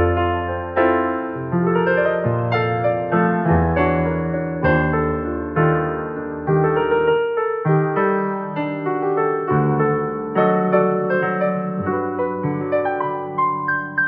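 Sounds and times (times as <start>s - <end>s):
electronic keyboard chords: 0.0s - 14.0s.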